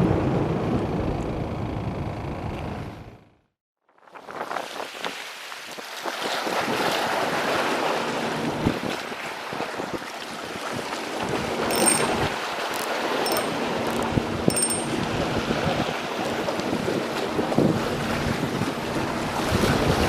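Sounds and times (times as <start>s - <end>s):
waves: 4.0s - 20.0s
short high ticks: 11.7s - 15.0s.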